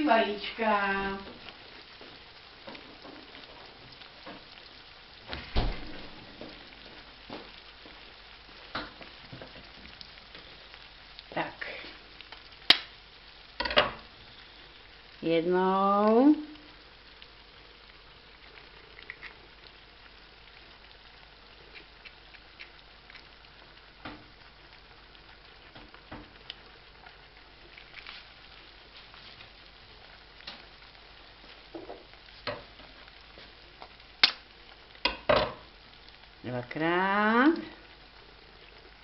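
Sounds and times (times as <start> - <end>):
food sizzling in a pan: 0.0 - 39.0
egg cracked against pan: 12.7 - 13.0, 13.6 - 14.0, 33.8 - 35.7.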